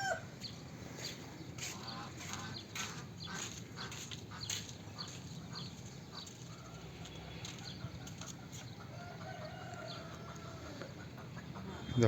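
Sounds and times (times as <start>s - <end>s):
drawn-out chicken call: 0.0s - 0.5s, 6.1s - 12.0s
chickens clucking: 0.0s - 12.0s
low outdoor background: 0.0s - 12.0s.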